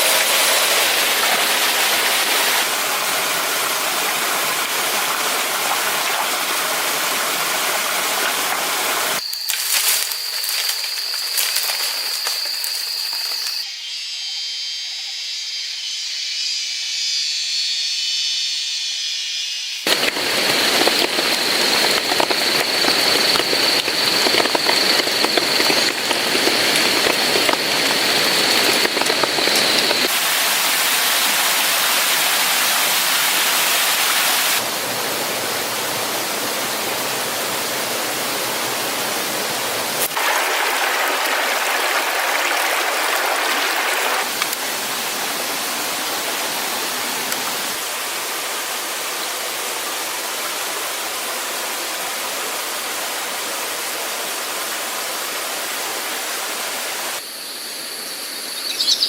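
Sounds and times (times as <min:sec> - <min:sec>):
waterfall rushing water: 0:00.0 - 0:09.2, 0:19.9 - 0:57.2.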